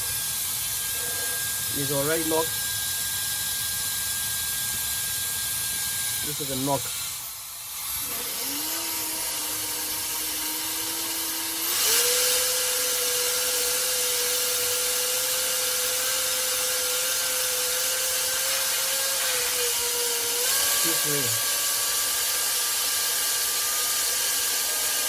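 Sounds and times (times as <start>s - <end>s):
hair dryer running: 6.2s - 14.5s, 15.2s - 22.5s.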